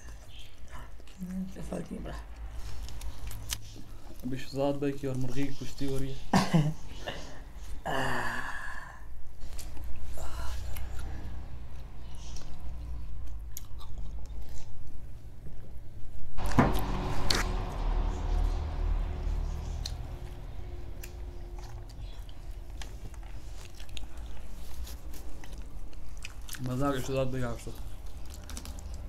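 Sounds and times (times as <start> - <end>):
chewing and biting chicken: 12.1 - 15.7, 22.8 - 29.0
sharp knock: 16.4 - 20.0.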